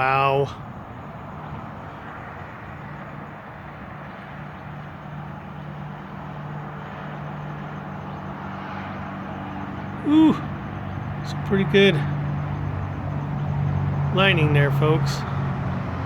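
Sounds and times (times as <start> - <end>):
distant highway traffic: 0.0 - 16.0.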